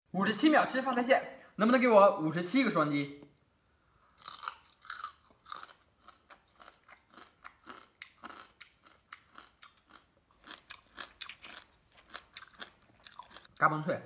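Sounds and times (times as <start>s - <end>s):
crab shells crunching: 4.2s - 13.6s.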